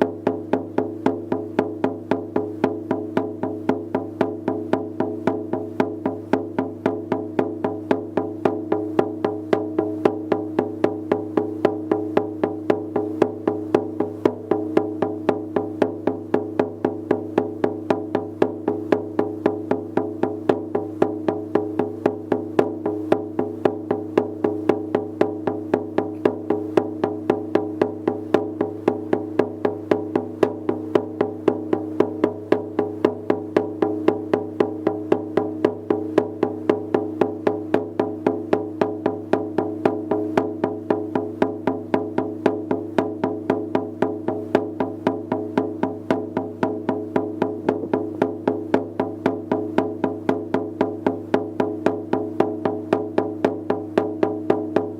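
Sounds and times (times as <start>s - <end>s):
frame drum beaten steadily: 0.0s - 54.9s.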